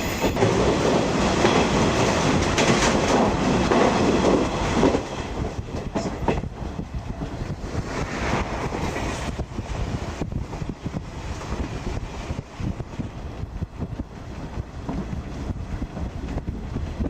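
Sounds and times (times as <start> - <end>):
wheels rumbling on rails: 0.0 - 17.0
clicks over rail joints: 0.3 - 6.5.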